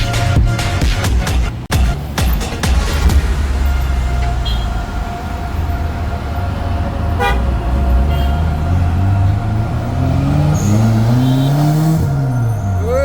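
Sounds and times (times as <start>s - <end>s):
car engine rumbling and revving: 0.0s - 13.0s
car horn beep: 3.2s - 6.2s, 7.0s - 12.4s.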